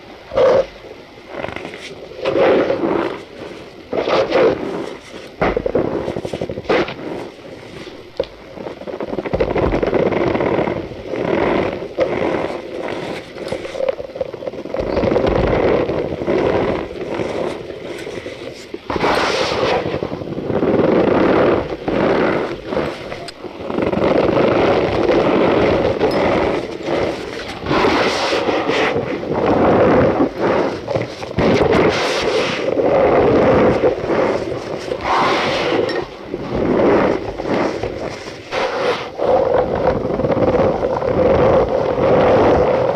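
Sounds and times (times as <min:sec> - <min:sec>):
powder crunching and squeaking: 0:04.0 - 0:20.4.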